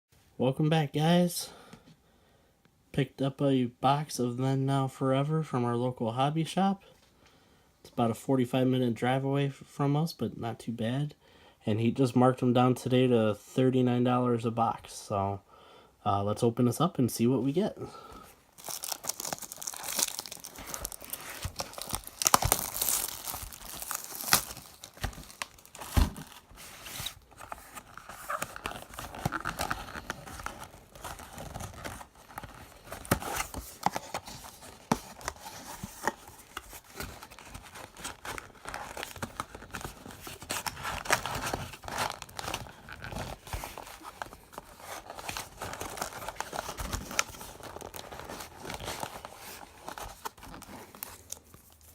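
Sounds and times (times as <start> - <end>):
packaging crinkling: 18.5 - 51.9
card packs being torn open: 18.6 - 51.9.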